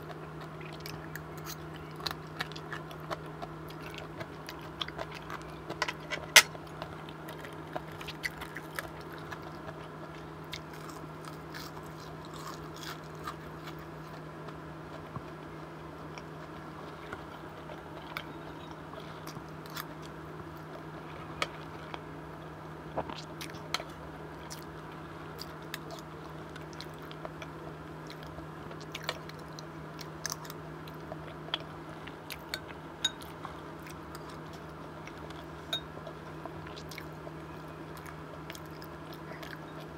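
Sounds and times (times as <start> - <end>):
person chewing and biting: 0.0 - 15.0
steady hum: 0.0 - 39.9.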